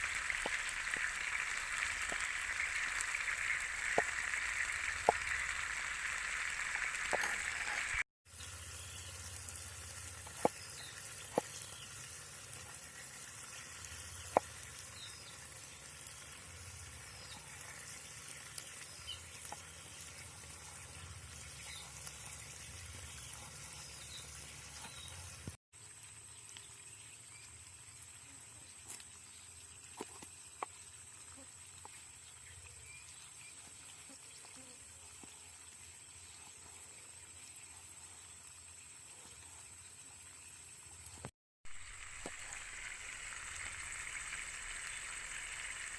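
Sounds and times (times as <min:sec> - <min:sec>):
steak sizzling in a pan: 0:00.0 - 0:08.0, 0:41.7 - 0:45.9.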